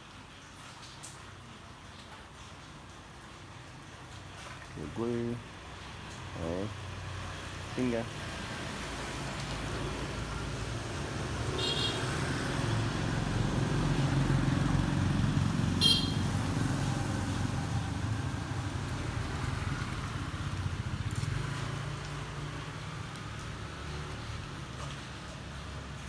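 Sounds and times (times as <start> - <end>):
traffic engine rumble: 4.8 - 26.0
high-pitched horn beeps: 15.8 - 16.2.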